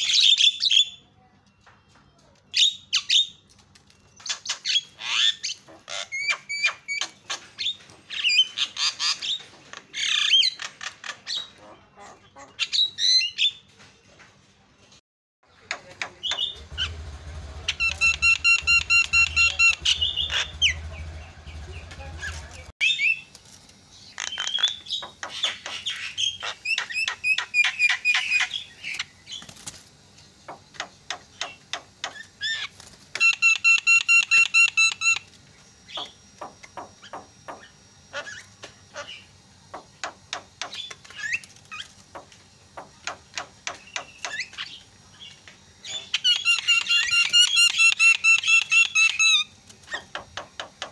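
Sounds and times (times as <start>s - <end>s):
myna calling noisily: 16.6s - 22.7s.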